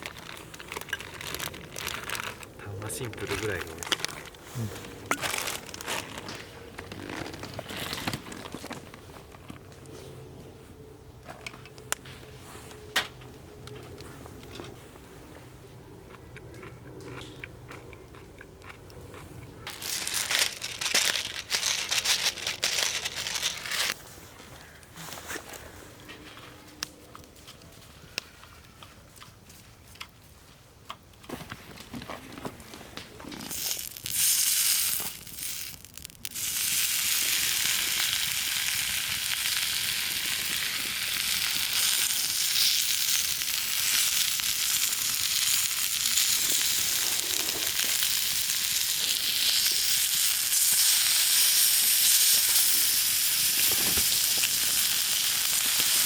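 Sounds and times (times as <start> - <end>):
handling noises: 0.0 - 15.0, 19.7 - 28.4.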